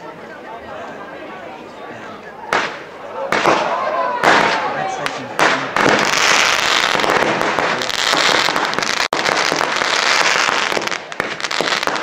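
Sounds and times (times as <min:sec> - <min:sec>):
fireworks crackling and popping: 0:02.5 - 0:12.0.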